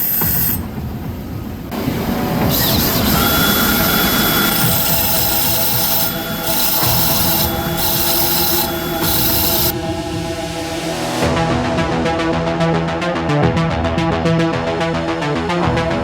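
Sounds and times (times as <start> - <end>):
power tool rasping on steel: 2.6 - 9.7.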